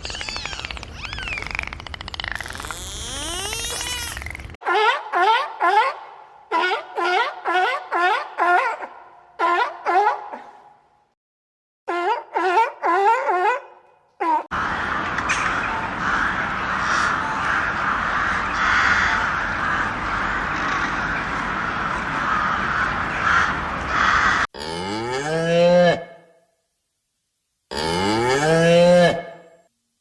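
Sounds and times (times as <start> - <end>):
many birds calling: 14.6 - 24.5.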